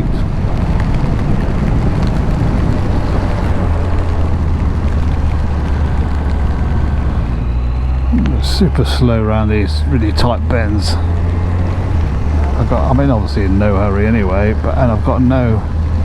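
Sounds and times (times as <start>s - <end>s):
motorcycle engine running: 0.0s - 16.0s
wind on microphone: 0.0s - 16.0s.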